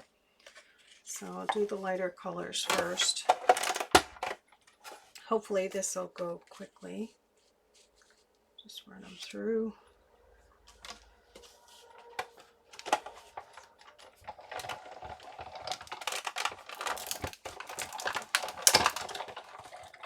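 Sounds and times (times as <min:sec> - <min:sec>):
die-cutting machine clicks and crackles: 0:12.2 - 0:20.0.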